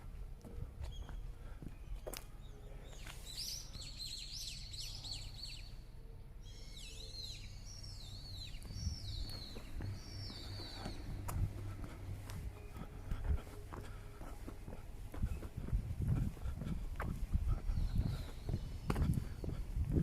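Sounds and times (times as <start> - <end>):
low background rumble: 4.4 - 20.0
birds calling: 6.4 - 20.0.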